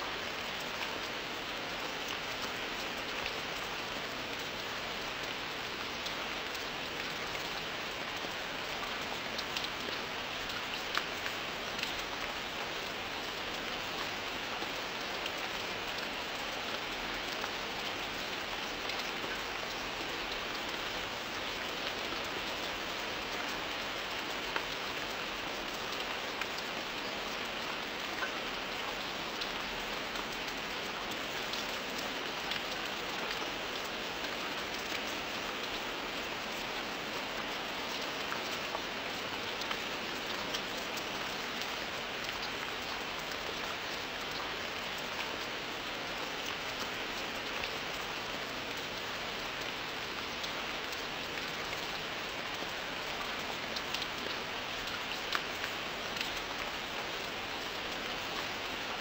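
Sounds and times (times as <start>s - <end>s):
rain falling steadily: 0.0s - 59.0s
sharp raindrop ticks: 8.9s - 13.8s, 49.6s - 58.5s.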